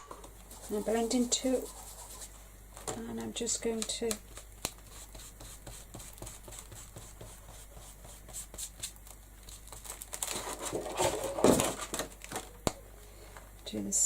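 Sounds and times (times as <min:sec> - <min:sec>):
foam tool rubbing on card: 0:00.5 - 0:02.4, 0:04.3 - 0:09.8
foam tool tapping on card: 0:04.0 - 0:08.9.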